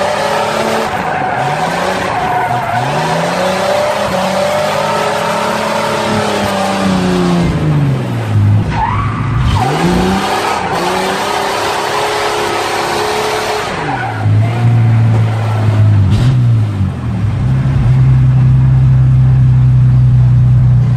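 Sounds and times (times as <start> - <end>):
car engine revving: 0.0 - 20.9.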